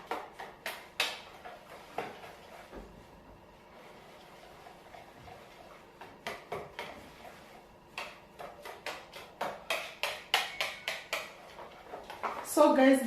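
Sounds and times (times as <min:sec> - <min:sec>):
utensil clicking against mixing bowl: 0:07.9 - 0:12.3.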